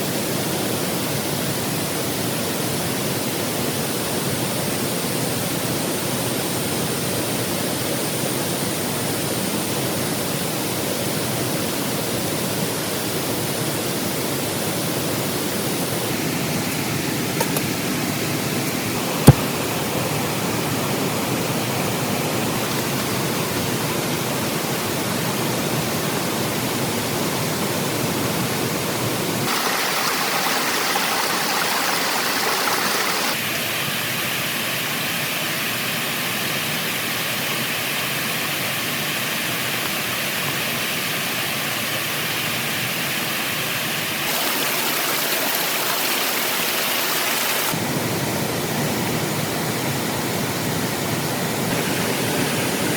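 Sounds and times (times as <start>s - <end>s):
heavy rain falling: 29.4s - 33.4s, 44.2s - 47.7s.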